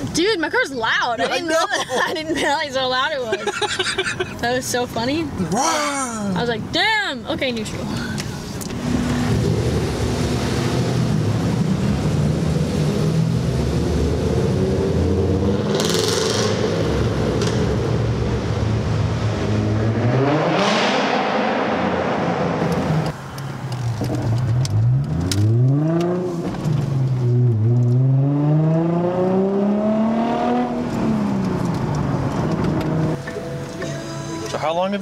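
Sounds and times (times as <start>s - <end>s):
car engine revving: 8.6s - 33.8s.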